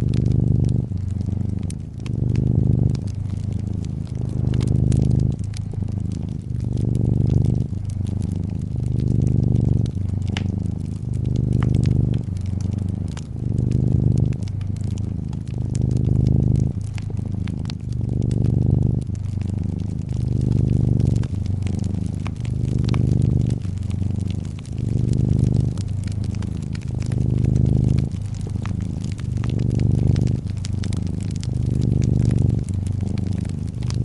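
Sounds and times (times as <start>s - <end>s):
cat purring: 0.0s - 34.0s
wood fire crackling: 0.0s - 34.0s.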